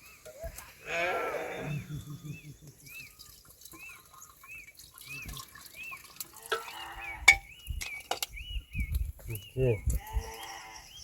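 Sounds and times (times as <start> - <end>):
animal bleating: 0.8 - 1.9, 10.0 - 10.9.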